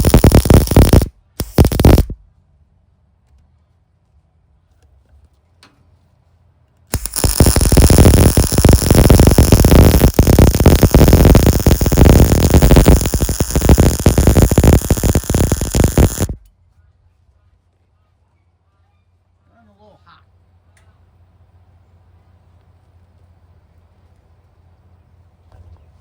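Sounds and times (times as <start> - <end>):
arc welder crackling: 0.0 - 2.2, 6.9 - 16.5.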